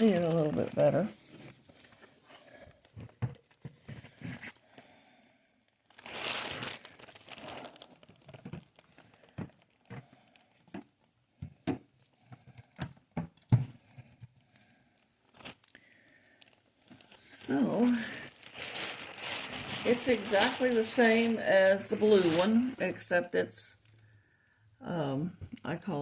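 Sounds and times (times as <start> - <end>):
plastic crinkling: 0.0 - 4.8, 5.7 - 11.1, 14.6 - 23.1.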